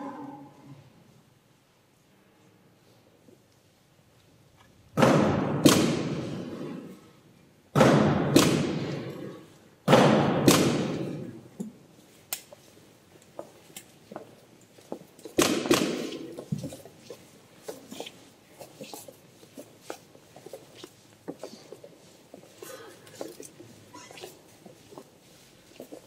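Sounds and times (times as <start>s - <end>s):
heavy echoing thuds: 5.0s - 6.4s, 7.8s - 8.9s, 9.9s - 11.2s.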